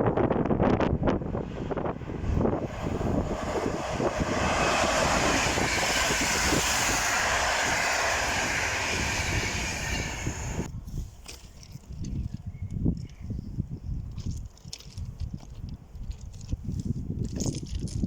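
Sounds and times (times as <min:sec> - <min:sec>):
train wheels rumbling on rails: 0:00.0 - 0:10.7
rushing hiss of passing train: 0:01.1 - 0:10.7.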